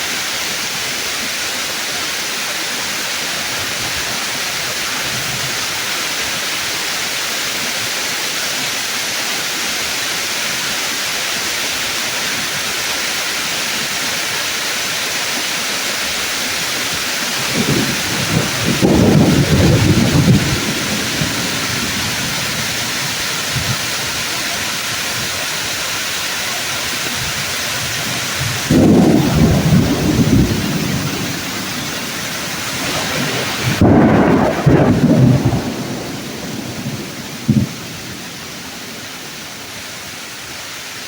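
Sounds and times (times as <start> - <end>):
heavy rain on leaves: 0.0 - 41.0
rolling thunder: 16.9 - 24.3, 27.9 - 39.7.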